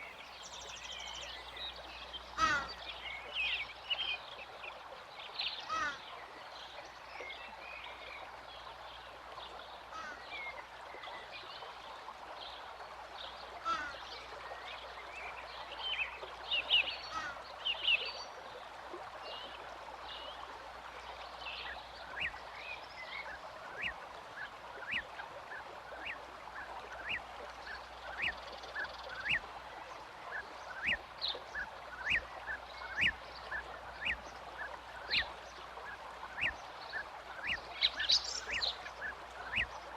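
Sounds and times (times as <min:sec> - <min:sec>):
birds chirping: 0:00.0 - 0:03.6, 0:23.2 - 0:29.4, 0:30.3 - 0:39.8.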